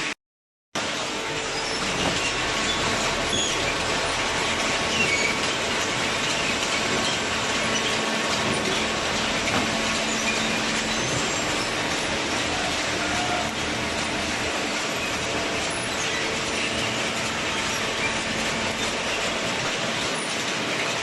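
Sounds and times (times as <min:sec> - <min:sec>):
baler machinery running: 0:00.8 - 0:21.0.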